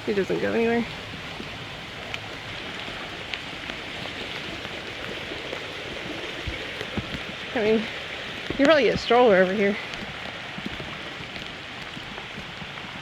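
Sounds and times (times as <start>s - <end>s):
rain hissing: 0.0s - 13.0s
running water: 0.0s - 13.0s
faint drops ticking: 6.4s - 12.6s.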